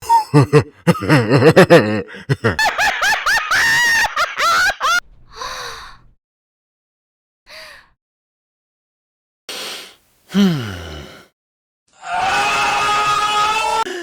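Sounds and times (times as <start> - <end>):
low-voiced laugh: 0.0 - 5.0.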